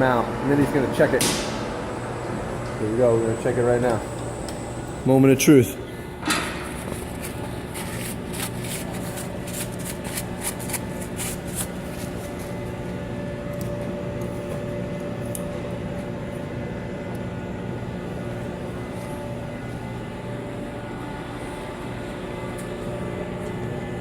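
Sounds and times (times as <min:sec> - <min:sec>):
machine shop hum: 0:00.0 - 0:24.0.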